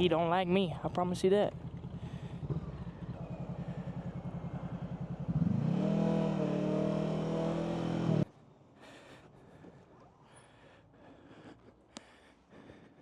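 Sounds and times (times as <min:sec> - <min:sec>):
motorcycle engine idling and revving: 0:00.0 - 0:08.3.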